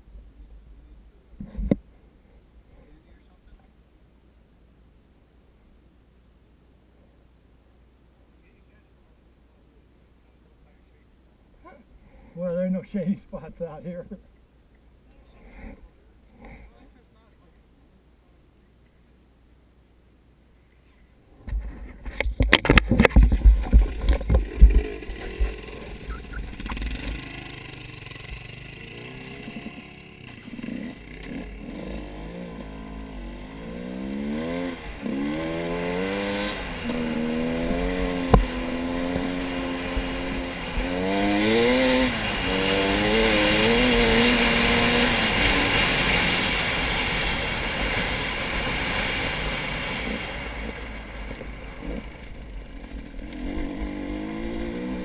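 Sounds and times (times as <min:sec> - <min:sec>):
vehicle engine shifting gears: 0:22.6 - 0:55.0.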